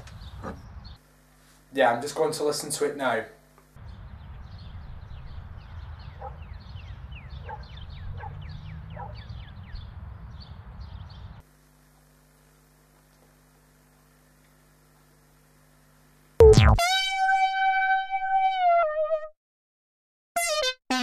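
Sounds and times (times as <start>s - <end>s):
small birds chirping: 0.0s - 1.0s, 3.8s - 11.4s.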